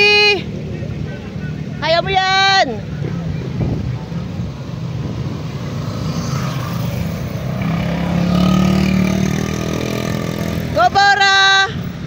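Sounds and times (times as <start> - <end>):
car engine passing: 2.8 - 11.0
motorcycle engine passing: 3.9 - 11.2.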